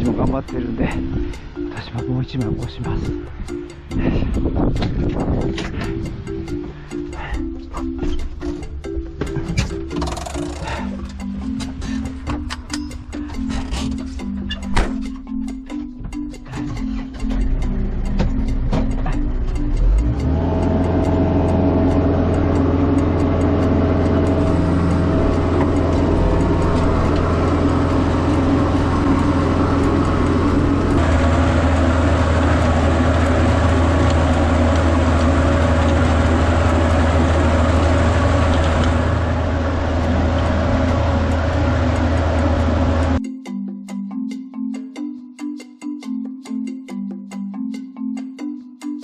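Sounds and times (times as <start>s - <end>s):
tractor diesel engine running: 0.0s - 43.2s.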